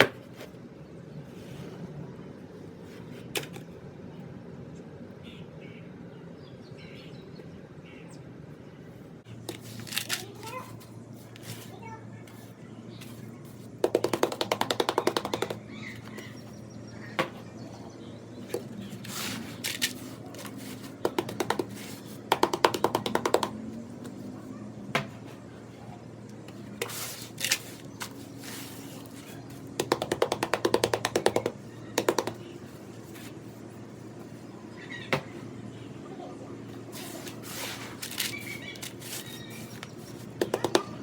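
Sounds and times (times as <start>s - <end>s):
tapping on cement blocks: 13.8s - 16.3s, 19.7s - 23.6s, 29.8s - 32.4s, 40.3s - 41.0s.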